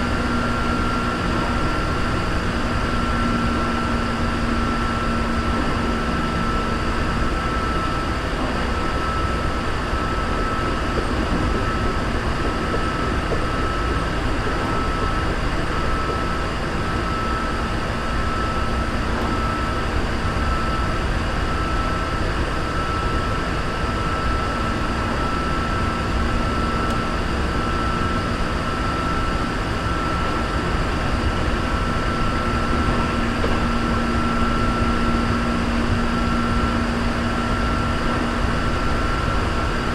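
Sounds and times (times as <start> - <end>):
high motor whine: 0.0 - 39.9
low hum: 0.0 - 39.9
train wheels rumbling on rail: 0.0 - 39.9.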